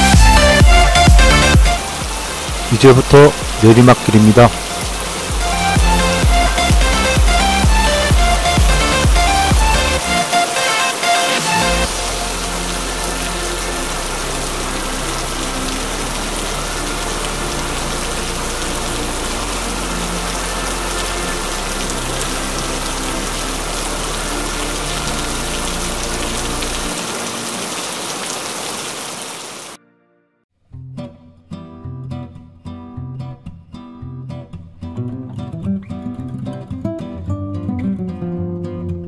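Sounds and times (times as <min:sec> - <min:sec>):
soft bass music: 0:00.0 - 0:10.3, 0:11.6 - 0:26.9
rain hiss: 0:00.0 - 0:29.8.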